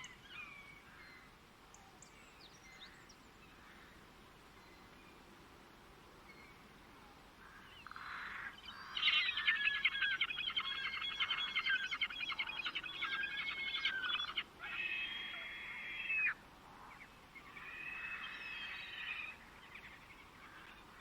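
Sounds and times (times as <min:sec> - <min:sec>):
songbird warbling: 0:07.4 - 0:21.0.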